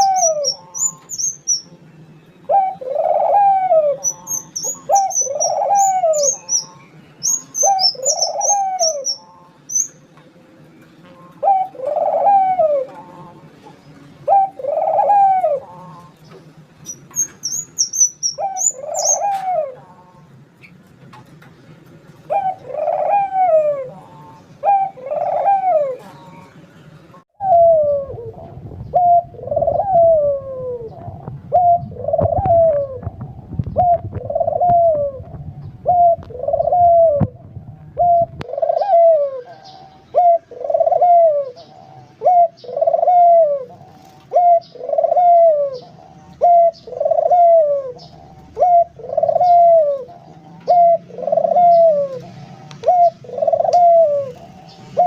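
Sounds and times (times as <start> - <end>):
dove cooing: 0.0 - 1.7, 2.5 - 9.9, 11.1 - 16.2, 17.2 - 20.3, 22.2 - 26.7, 27.4 - 55.0.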